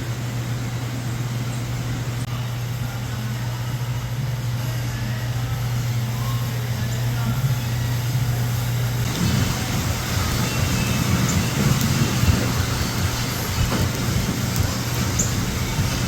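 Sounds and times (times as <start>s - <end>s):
low engine hum: 0.0s - 16.0s
traffic rumble: 0.0s - 16.0s.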